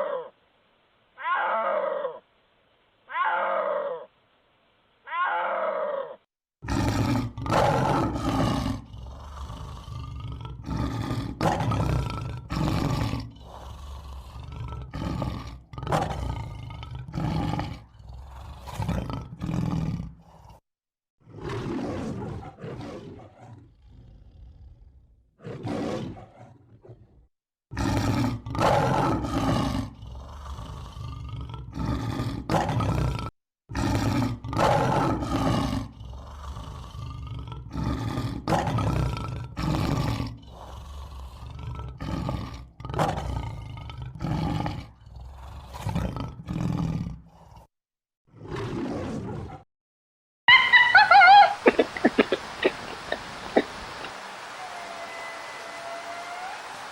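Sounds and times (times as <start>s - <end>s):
large animal roaring: 5.3s - 20.6s, 21.3s - 27.1s, 27.7s - 47.7s, 48.3s - 49.7s.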